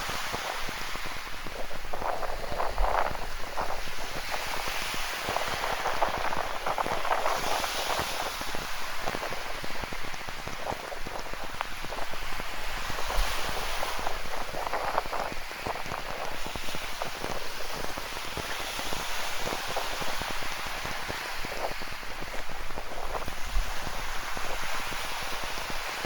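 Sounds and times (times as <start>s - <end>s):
ocean surf: 0.0s - 26.0s.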